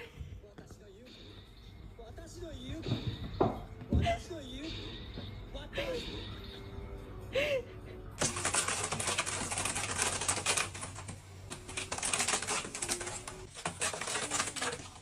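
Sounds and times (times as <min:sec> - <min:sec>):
quick small clicks and scratches: 0:08.2 - 0:15.0.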